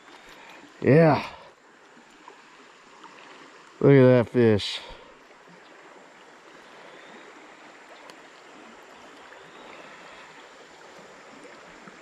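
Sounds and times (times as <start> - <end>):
creek water flowing: 0.0 - 12.0
small tick: 8.0 - 8.4.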